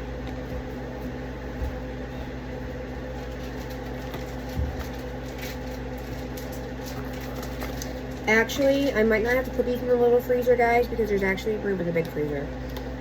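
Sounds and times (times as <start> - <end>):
kitchen appliance humming: 0.0 - 13.0.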